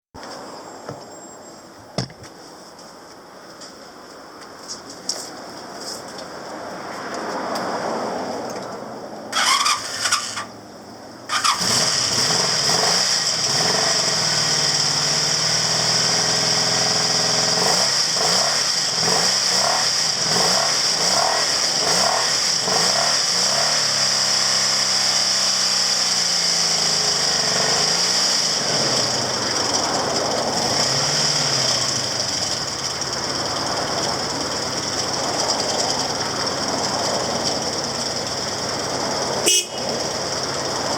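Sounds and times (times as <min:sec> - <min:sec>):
motorcycle engine revving and idling: 0:09.3 - 0:10.6, 0:11.3 - 0:40.9
motorcycle engine cranking: 0:09.4 - 0:10.6, 0:11.3 - 0:39.2.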